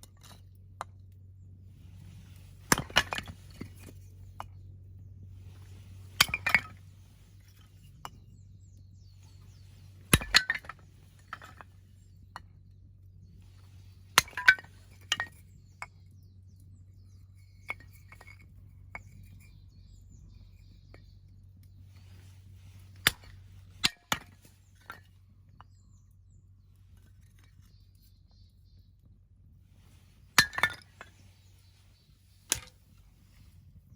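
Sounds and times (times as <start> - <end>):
split wood pieces clattering: 2.6 - 4.0, 5.6 - 6.8, 9.9 - 11.7, 14.2 - 15.4, 30.4 - 31.2, 32.5 - 32.8
axe splitting wood: 2.7 - 3.6, 10.1 - 10.7.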